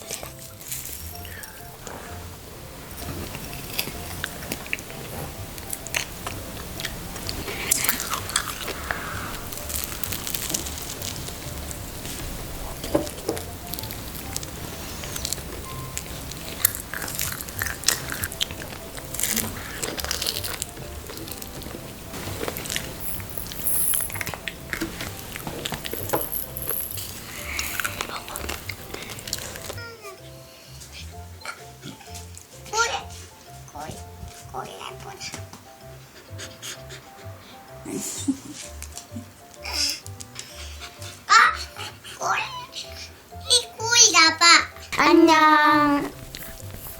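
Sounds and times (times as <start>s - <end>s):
biting and chewing food: 0.0s - 29.8s, 46.0s - 46.9s
crunches and wet clicks: 3.0s - 29.8s.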